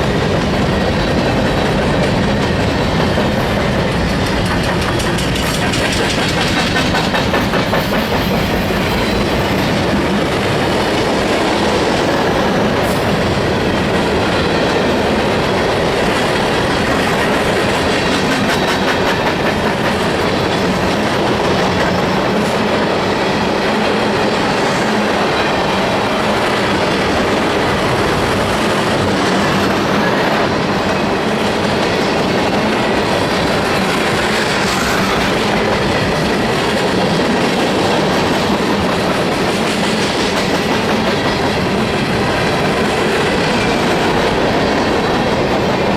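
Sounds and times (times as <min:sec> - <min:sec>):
freight train rumbling: 0:00.0 - 0:45.9
train wheels clicking over rail joints: 0:00.0 - 0:45.9.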